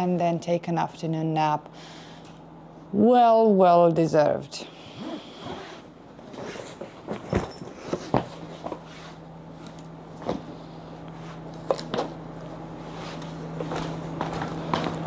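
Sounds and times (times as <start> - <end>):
steady low hum: 0.0 - 15.0
footsteps in a small room: 6.3 - 15.0.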